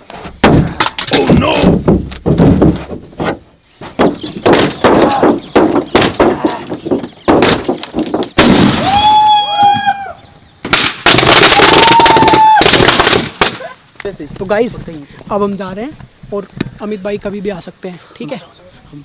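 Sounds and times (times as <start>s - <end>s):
whistling fireworks: 8.5s - 13.7s
firecrackers banging: 10.6s - 13.8s.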